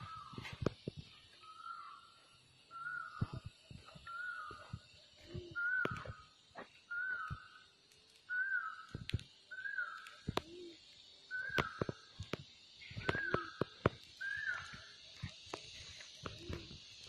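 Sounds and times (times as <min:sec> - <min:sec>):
bird whistled call: 0:00.0 - 0:00.5, 0:01.4 - 0:12.1, 0:12.8 - 0:15.0.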